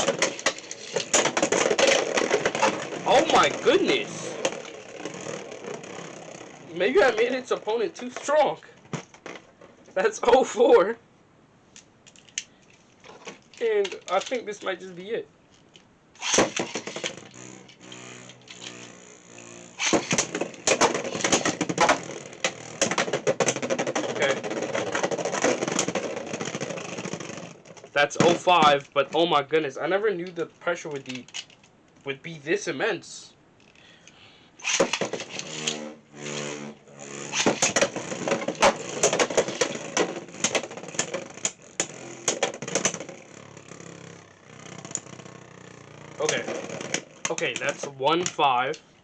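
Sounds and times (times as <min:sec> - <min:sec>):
spinning tops whirring: 0:00.0 - 0:08.5, 0:16.2 - 0:28.8, 0:34.6 - 0:48.0
tops clacking and rattling: 0:00.0 - 0:09.7, 0:16.2 - 0:19.0, 0:19.8 - 0:28.8, 0:34.6 - 0:48.4.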